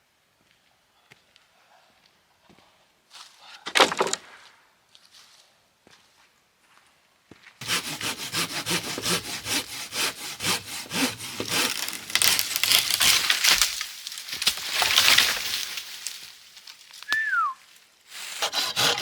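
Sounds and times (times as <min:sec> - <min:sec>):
hand saw cutting wood: 0:07.6 - 0:13.8, 0:18.2 - 0:19.0.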